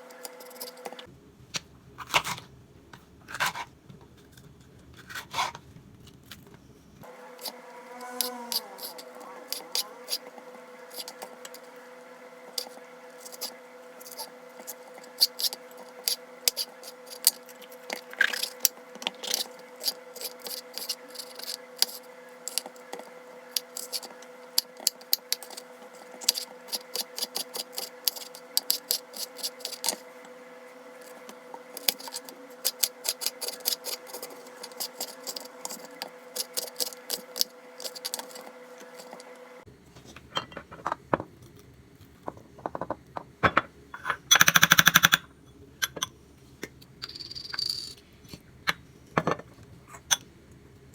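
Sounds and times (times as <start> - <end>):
appliance humming: 4.6 - 45.0.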